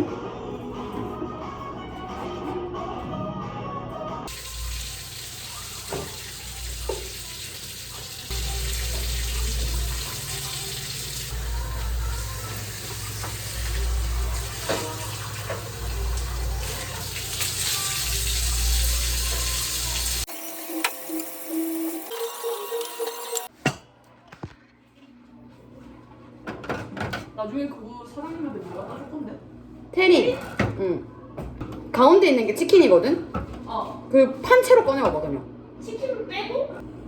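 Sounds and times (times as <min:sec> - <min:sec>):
background music: 0:00.0 - 0:05.3, 0:08.3 - 0:20.3
water running from a tap into a sink: 0:04.3 - 0:23.5.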